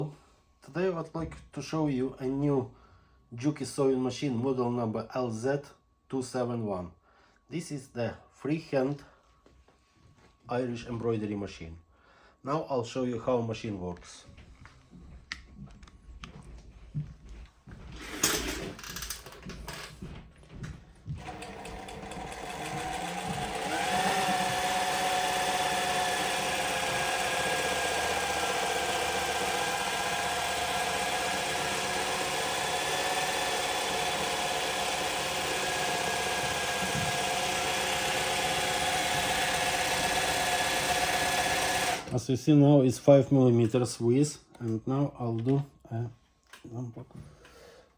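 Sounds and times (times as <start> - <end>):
industrial sewing machine running: 21.2 - 42.1.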